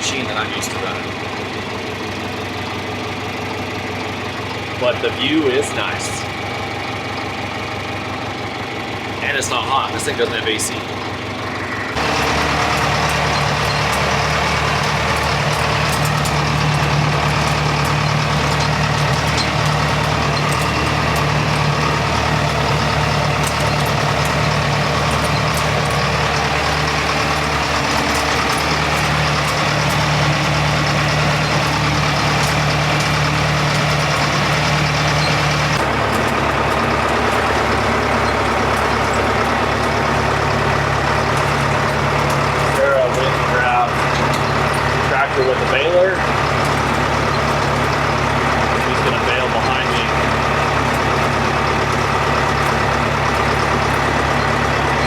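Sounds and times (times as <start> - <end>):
tractor engine running: 0.0 - 55.0
small rattling ticks: 12.0 - 40.5.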